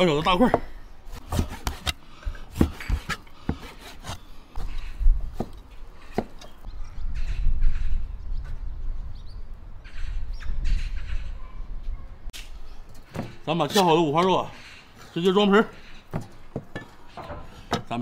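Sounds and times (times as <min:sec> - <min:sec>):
crows cawing: 0:09.8 - 0:11.3, 0:14.5 - 0:15.0.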